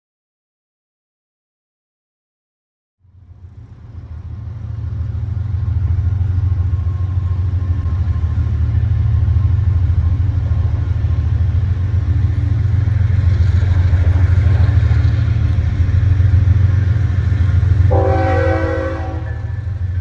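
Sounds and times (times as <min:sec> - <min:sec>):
train diesel engine rumble: 0:03.0 - 0:20.0
train horn blast: 0:17.6 - 0:20.0.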